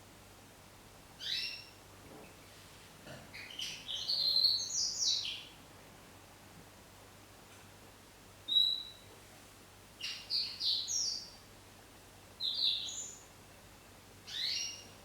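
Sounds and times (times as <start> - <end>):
songbird singing: 1.2 - 1.8, 3.4 - 5.6, 8.5 - 9.0, 10.0 - 11.4, 12.4 - 13.3, 14.3 - 15.0.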